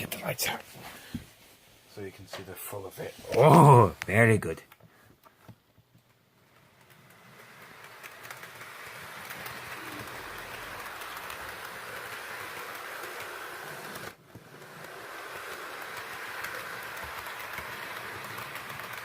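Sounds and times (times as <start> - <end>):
model train whirring hum: 6.1 - 19.0.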